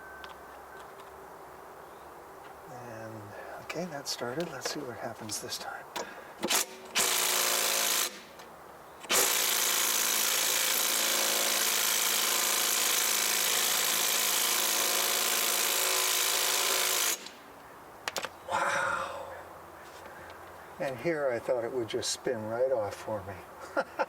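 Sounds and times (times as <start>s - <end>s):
impact driver hammering nut: 6.0s - 8.4s, 9.1s - 17.4s.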